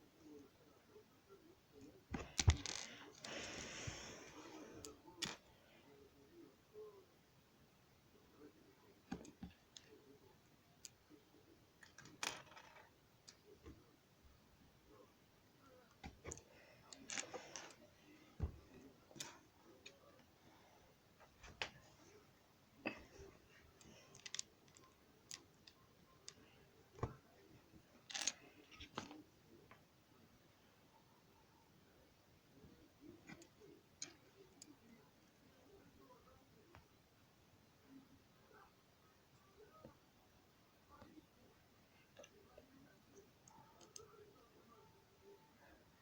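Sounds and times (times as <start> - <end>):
plastic pieces clicking: 23.8 - 26.4.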